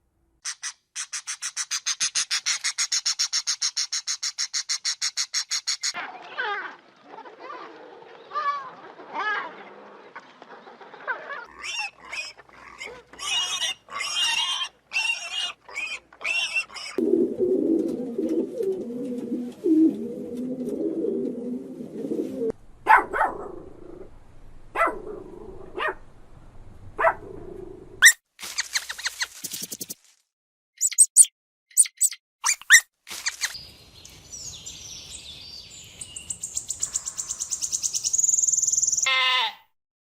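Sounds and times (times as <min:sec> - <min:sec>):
high-pitched animal cries: 0:11.5 - 0:17.0, 0:39.0 - 0:39.6.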